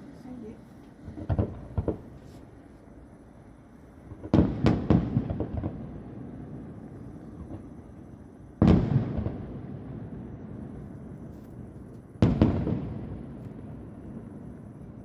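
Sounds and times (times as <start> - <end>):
distant fireworks bangs echoing: 1.0 - 2.2, 4.1 - 7.8, 8.6 - 10.8, 12.2 - 14.9.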